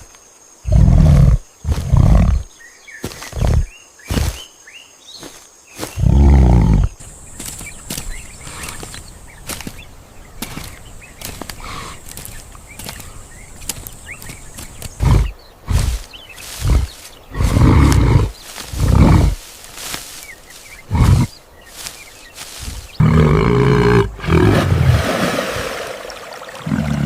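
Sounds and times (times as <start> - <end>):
deep animal grunts and calls: 0.6 - 2.6, 3.2 - 4.2, 5.9 - 7.1, 14.1 - 19.9, 20.6 - 24.8, 26.6 - 27.0.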